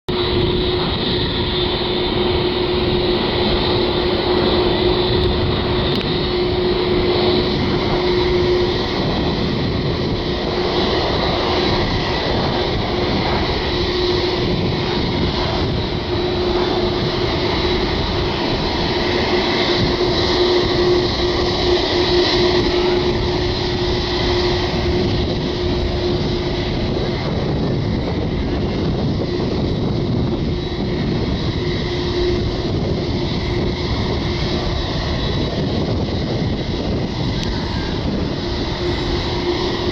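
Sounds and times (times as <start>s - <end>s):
jet engines running with whine: 0.1s - 39.9s.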